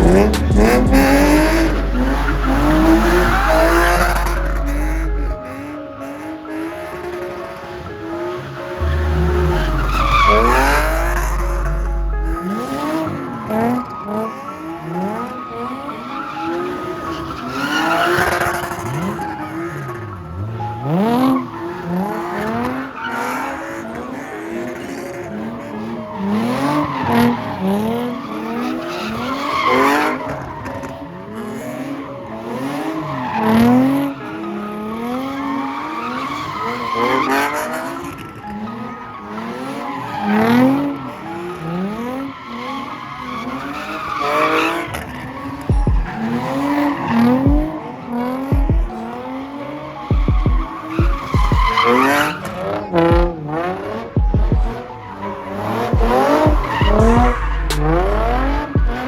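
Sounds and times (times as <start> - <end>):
low thuds: 0.0 - 5.4, 8.8 - 12.4, 45.7 - 46.2, 47.5 - 47.7, 48.6 - 48.9, 50.1 - 51.7, 54.2 - 54.7, 56.0 - 59.0
car engine revving: 0.0 - 59.0
tyre squeal: 8.8 - 13.2, 50.1 - 52.6.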